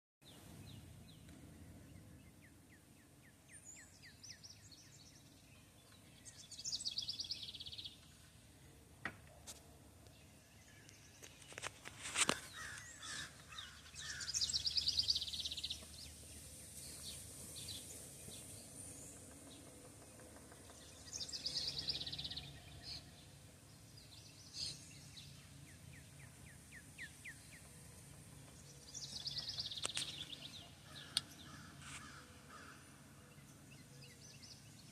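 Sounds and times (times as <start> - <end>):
birds calling: 10.1 - 34.9.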